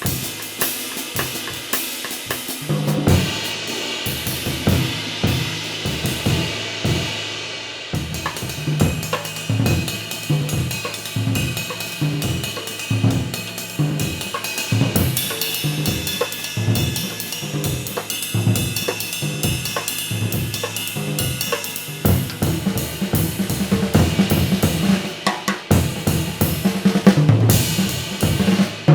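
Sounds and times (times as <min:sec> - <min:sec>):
drum kit groove: 0:00.0 - 0:28.9
ride cymbal ringing: 0:08.4 - 0:24.9.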